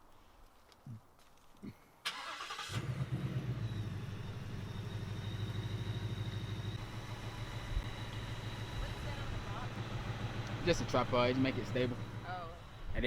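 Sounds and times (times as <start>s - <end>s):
starter motor cranking: 2.1s - 3.1s
car engine idling: 2.1s - 13.0s.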